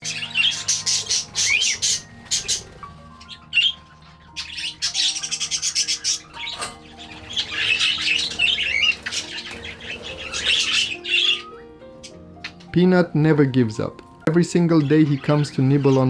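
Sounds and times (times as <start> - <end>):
budgie chirping and chattering: 0.0 - 12.7.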